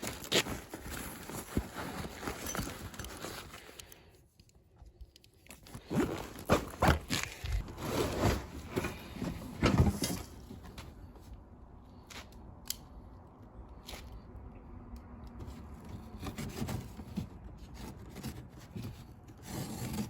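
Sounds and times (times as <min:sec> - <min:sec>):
packaging rustling and scraping: 0:00.0 - 0:04.2, 0:05.4 - 0:11.3, 0:15.8 - 0:20.0.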